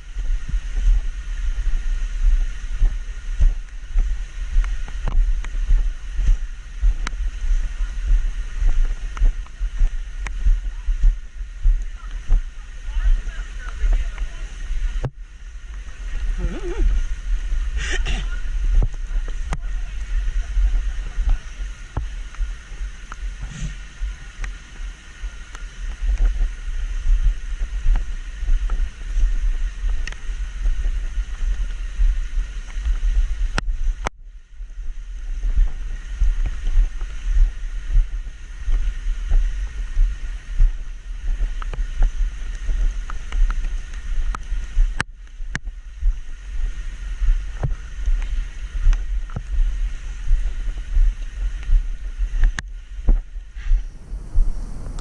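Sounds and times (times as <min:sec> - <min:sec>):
steady hiss: 0:00.0 - 0:55.0
wind buffeting microphone: 0:00.0 - 0:55.0.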